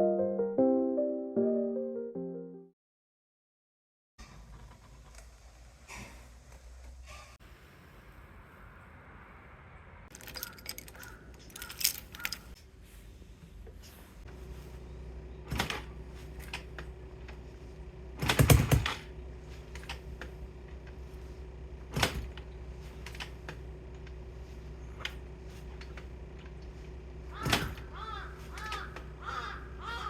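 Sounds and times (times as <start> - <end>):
steady low hum: 7.5 - 30.0
crows cawing: 10.2 - 12.5, 27.3 - 30.0.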